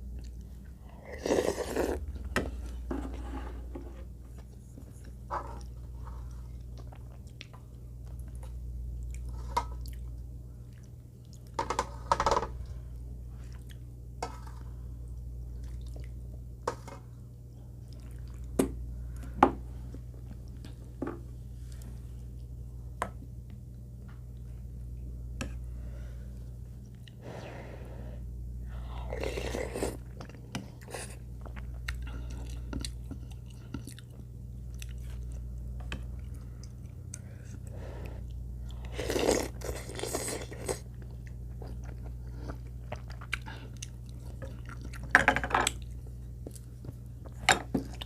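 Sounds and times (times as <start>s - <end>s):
low steady hum: 0.0s - 48.0s
person chewing: 28.9s - 45.1s.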